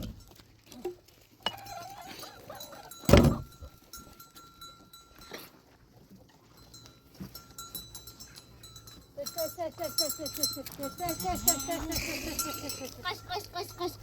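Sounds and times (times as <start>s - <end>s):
loud thump: 3.1s - 3.5s
sheep or goat bleating: 11.0s - 14.0s.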